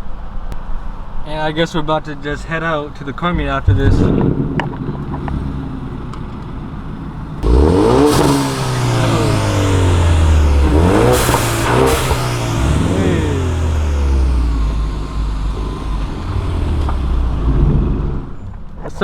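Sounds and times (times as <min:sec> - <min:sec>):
car engine accelerating: 0:03.2 - 0:18.8.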